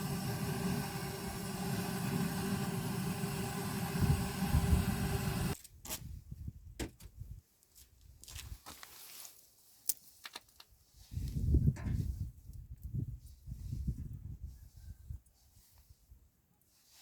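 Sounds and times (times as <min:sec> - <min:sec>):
low mechanical hum: 0:00.0 - 0:05.6.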